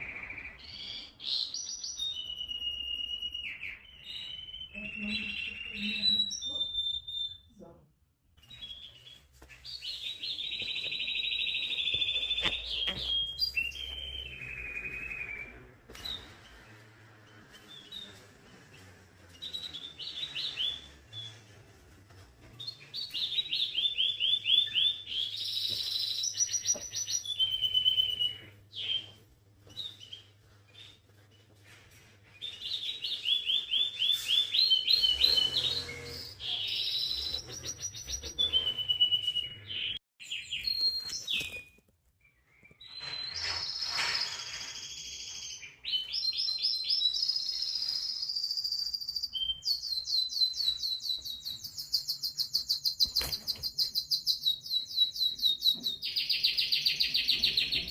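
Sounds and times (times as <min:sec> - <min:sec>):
songbird singing with trills: 0:00.0 - 0:07.5.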